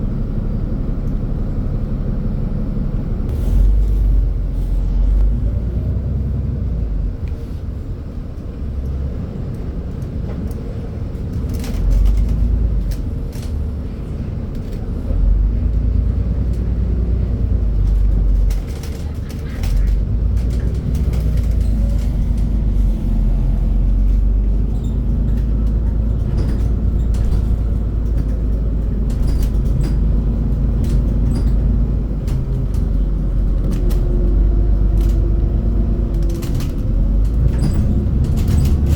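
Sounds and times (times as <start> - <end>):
bus engine and road rumble: 0.0 - 38.9
clicks and rattles: 17.7 - 22.6.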